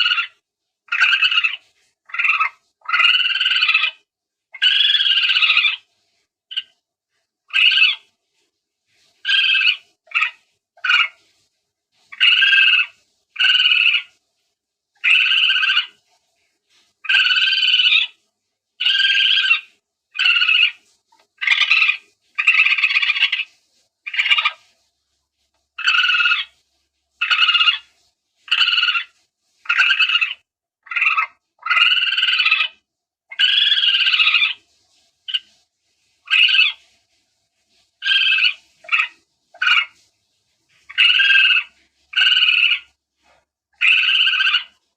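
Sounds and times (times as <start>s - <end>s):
short raspy animal calls: 0.0s - 4.0s, 4.6s - 5.9s, 7.5s - 8.1s, 9.2s - 11.2s, 12.1s - 14.2s, 15.0s - 16.0s, 17.0s - 18.2s, 18.8s - 24.7s, 25.8s - 26.6s, 27.2s - 27.9s, 28.5s - 34.6s, 36.2s - 36.8s, 38.0s - 40.0s, 40.8s - 42.9s, 43.8s - 44.8s.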